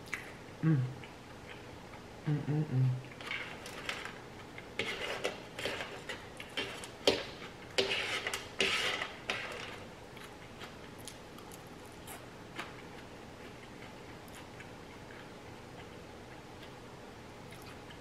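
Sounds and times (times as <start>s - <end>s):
soft chewing: 0.0s - 2.1s, 9.7s - 18.0s
crunchy eating: 3.0s - 16.8s, 17.4s - 18.0s.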